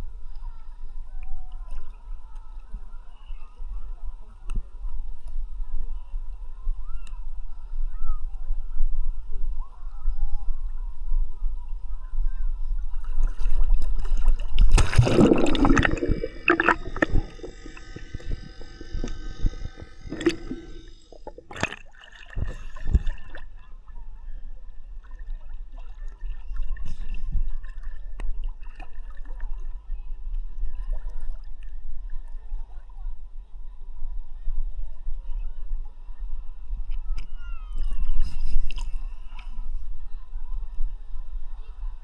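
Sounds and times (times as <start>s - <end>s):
water rumbling against microphone: 13.8s - 23.6s
sea water sloshing and gurgling: 14.6s - 23.5s
loud water splash: 14.7s - 21.8s.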